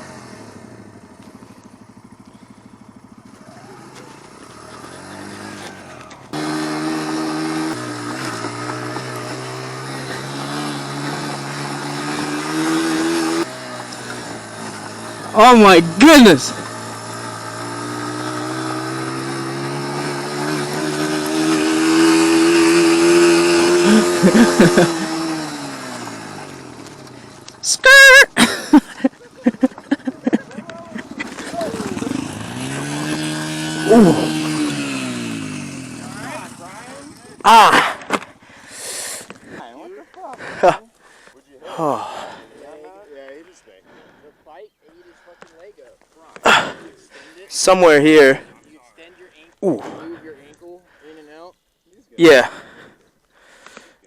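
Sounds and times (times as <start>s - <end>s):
close loud motorcycle engine: 0.0s - 39.7s, 46.4s - 48.5s
motorcycle engines revving: 0.0s - 43.3s, 46.2s - 51.1s.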